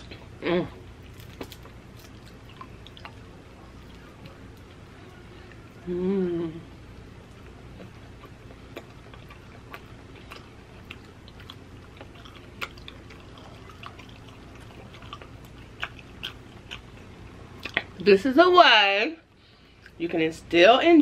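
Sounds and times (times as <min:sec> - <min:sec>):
low steady hum: 0:00.0 - 0:21.0
chewing with wet mouth smacks: 0:01.2 - 0:04.8, 0:07.3 - 0:18.0.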